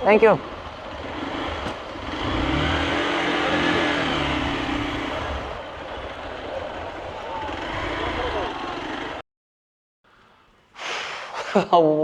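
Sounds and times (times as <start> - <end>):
vehicle engine accelerating: 0.4 - 9.2.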